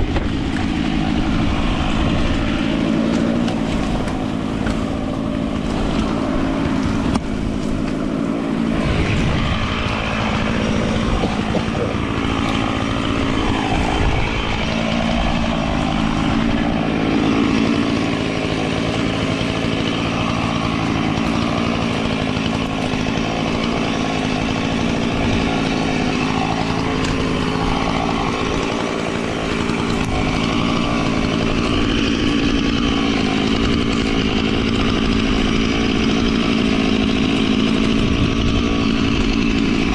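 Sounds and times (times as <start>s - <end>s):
chainsaw engine running: 0.0s - 39.9s.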